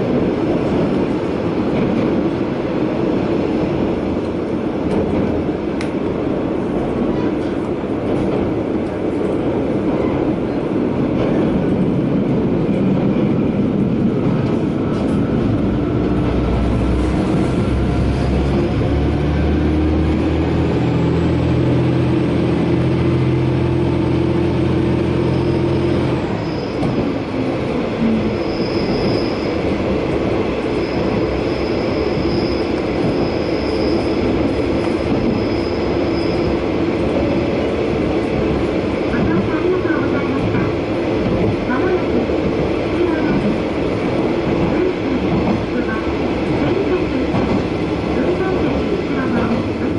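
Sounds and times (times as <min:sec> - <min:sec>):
train wheel and rail noise: 0:00.0 - 0:49.9
high wheel squeal: 0:25.2 - 0:27.0, 0:28.2 - 0:29.6, 0:30.8 - 0:34.3, 0:35.2 - 0:36.6.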